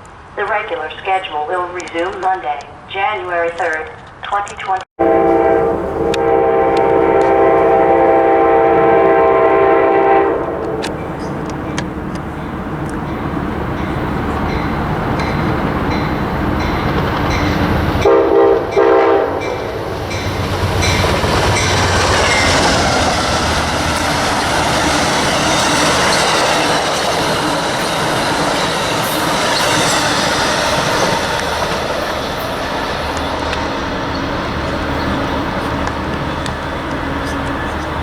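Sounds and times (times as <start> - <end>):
train horn blasts: 5.0 - 11.8, 18.0 - 24.3
wheels clattering on rails: 10.4 - 18.2, 19.4 - 38.0.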